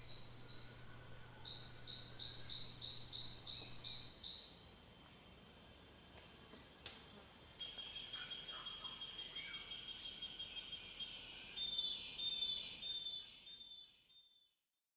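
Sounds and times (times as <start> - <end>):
insects trilling: 0.0 - 14.4
insect drone: 0.0 - 14.6
bird calls: 7.6 - 13.8.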